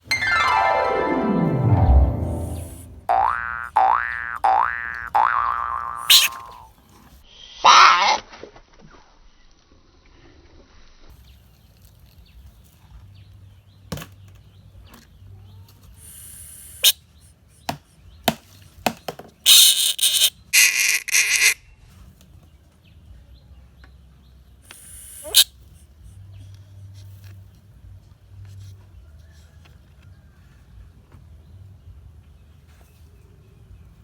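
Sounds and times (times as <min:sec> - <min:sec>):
bullfrog screaming: 0:03.1 - 0:06.7, 0:07.5 - 0:08.3, 0:19.5 - 0:21.6, 0:24.7 - 0:25.5.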